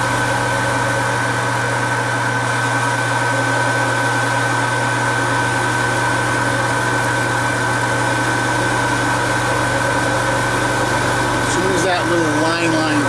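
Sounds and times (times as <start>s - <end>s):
metal lathe running: 0.0s - 13.0s.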